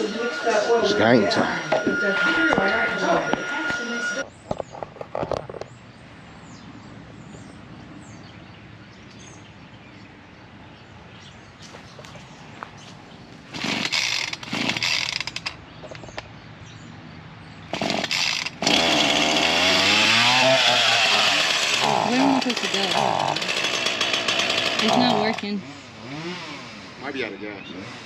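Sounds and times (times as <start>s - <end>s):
chainsaw engine running: 0.0s - 4.2s, 13.5s - 15.6s, 17.7s - 28.0s
chainsaw pull-start bursts: 13.5s - 15.6s, 17.7s - 27.0s.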